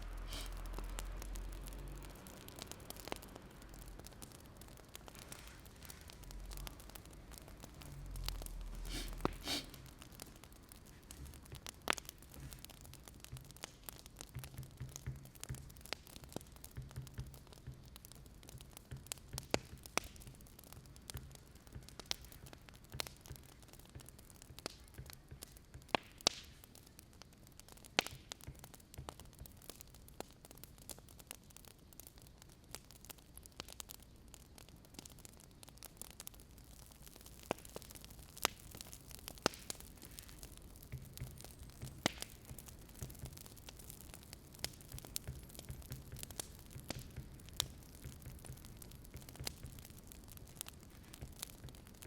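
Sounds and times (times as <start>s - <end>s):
soft hiss: 0.0s - 13.0s
wood fire crackling and popping: 0.0s - 52.0s.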